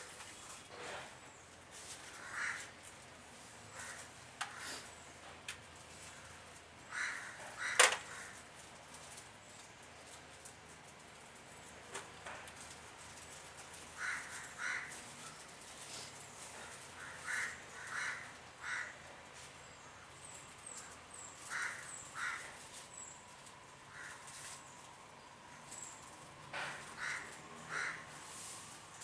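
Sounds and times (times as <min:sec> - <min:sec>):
bird harsh calls: 0:20.8 - 0:23.2.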